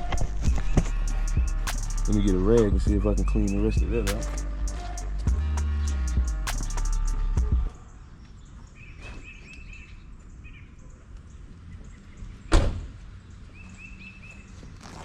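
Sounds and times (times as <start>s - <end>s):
rapid high chirps: 0.0s - 7.7s.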